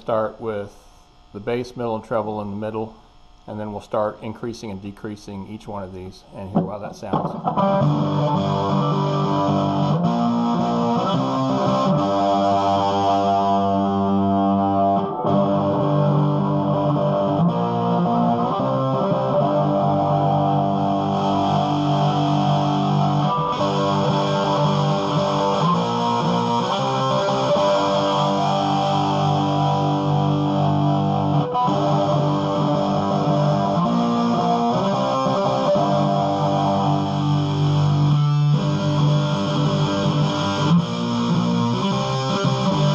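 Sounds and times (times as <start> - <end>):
distorted electric guitar: 0.0 - 42.9.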